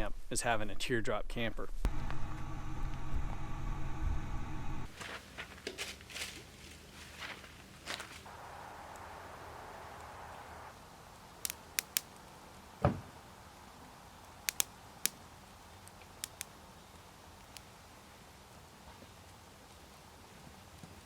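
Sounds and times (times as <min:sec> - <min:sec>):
sharp clicks and snaps: 0:11.4 - 0:12.2, 0:14.2 - 0:15.2, 0:15.8 - 0:16.5, 0:17.4 - 0:17.7.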